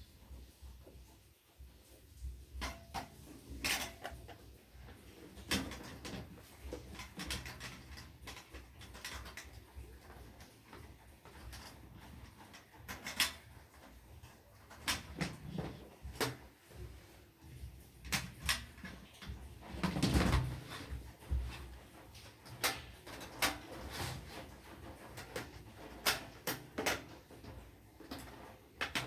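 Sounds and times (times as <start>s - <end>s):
plastic parts clicking and knocking: 2.6s - 14.0s, 18.0s - 29.0s
scraping rustle: 19.4s - 26.3s.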